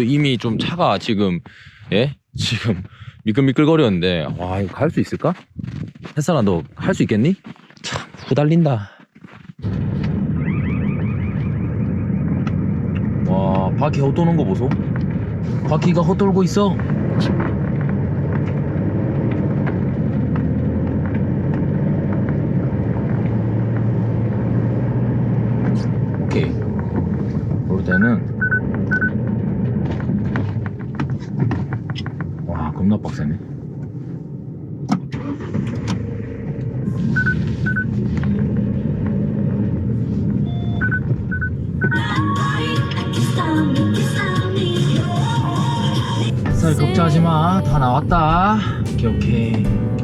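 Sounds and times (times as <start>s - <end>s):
wheels spinning in deep snow: 11.4s - 32.4s, 35.3s - 40.8s
van engine running under load: 12.3s - 32.7s, 33.6s - 42.2s, 44.2s - 50.0s
short electronic beeps: 27.9s - 29.2s, 37.1s - 37.9s, 40.4s - 42.0s
background music: 41.9s - 50.0s.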